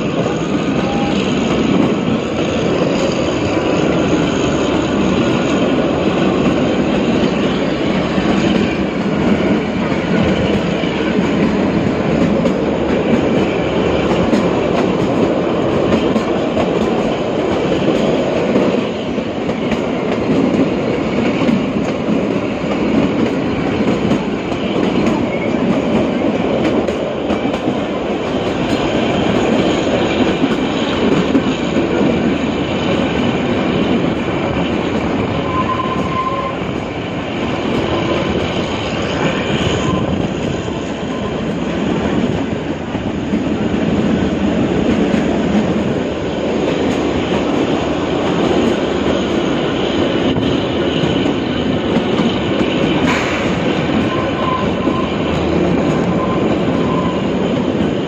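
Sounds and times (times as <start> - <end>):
train wheel squeal: 0.0 - 14.7, 23.4 - 26.2, 32.4 - 42.0, 48.5 - 58.0
train wheels rattling on rails: 0.0 - 58.0.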